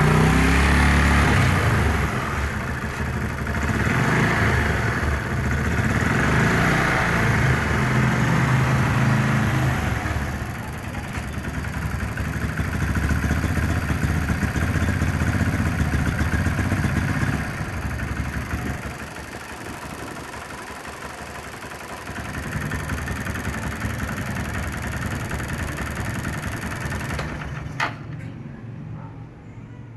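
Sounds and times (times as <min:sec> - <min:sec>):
motorcycle engine revving: 0:00.0 - 0:28.2.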